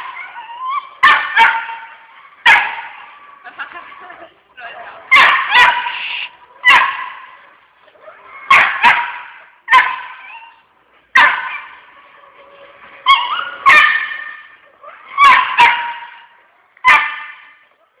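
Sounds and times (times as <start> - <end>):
dog barking: 1.0 - 3.1, 5.1 - 7.4, 8.4 - 10.6, 11.2 - 11.8, 13.1 - 17.6.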